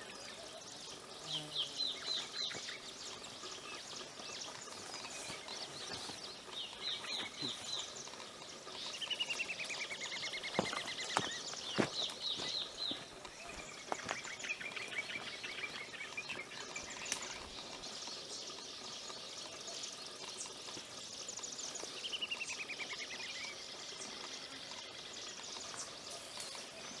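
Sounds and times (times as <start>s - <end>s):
bird chirping: 0.0s - 27.0s.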